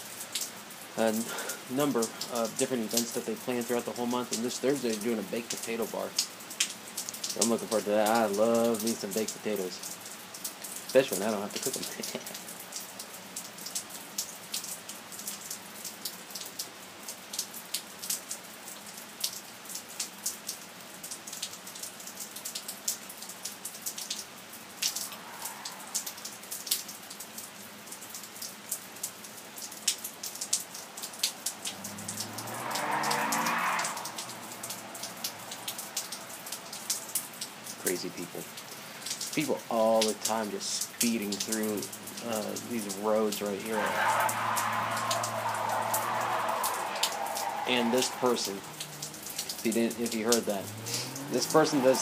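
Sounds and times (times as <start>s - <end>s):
rain falling: 0.0s - 52.0s
raindrops pattering: 0.0s - 52.0s
car speeding on wet road: 0.1s - 10.1s, 10.7s - 13.2s, 23.0s - 27.6s, 28.2s - 52.0s.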